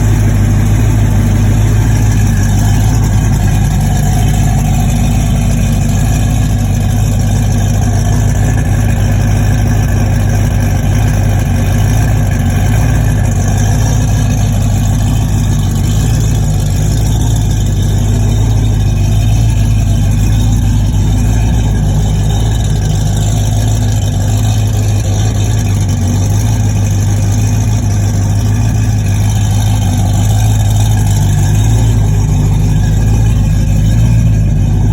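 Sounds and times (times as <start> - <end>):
race car engine idling: 0.0 - 34.9.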